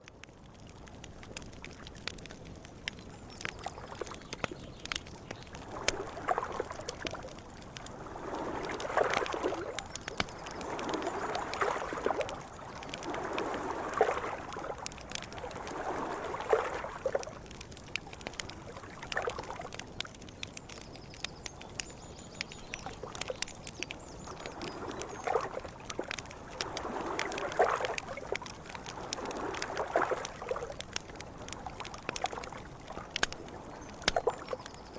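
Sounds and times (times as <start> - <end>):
campfire crackling and popping: 0.0 - 34.9
waves lapping against river bank: 0.8 - 20.2, 23.0 - 34.9.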